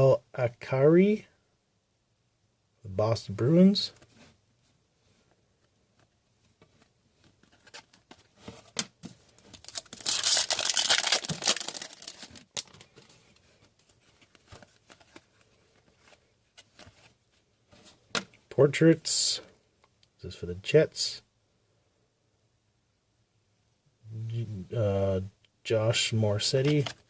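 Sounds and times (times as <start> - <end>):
wrapper tearing and crinkling: 9.5 - 12.9.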